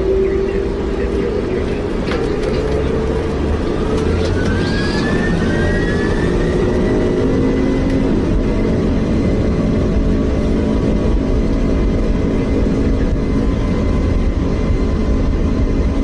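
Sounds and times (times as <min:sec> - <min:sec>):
jet engines at takeoff: 0:00.0 - 0:16.0.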